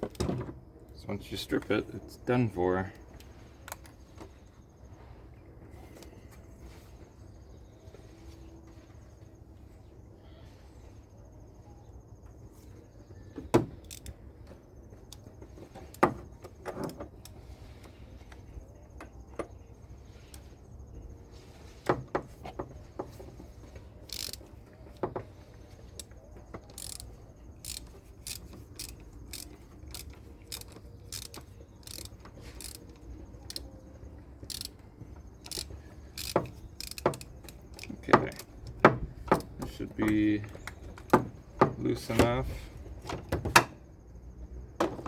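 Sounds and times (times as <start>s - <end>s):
socket wrench clicking: 13.8s - 14.2s, 24.1s - 24.5s, 26.7s - 33.7s, 34.5s - 34.8s, 35.4s - 39.6s.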